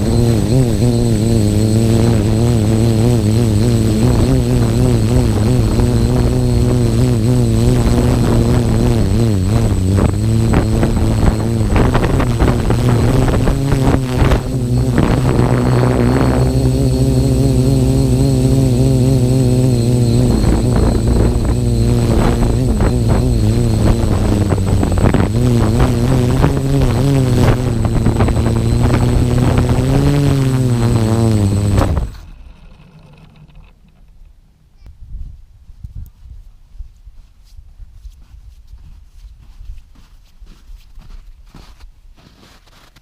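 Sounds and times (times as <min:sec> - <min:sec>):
quadcopter propellers buzzing: 0:00.0 - 0:33.8.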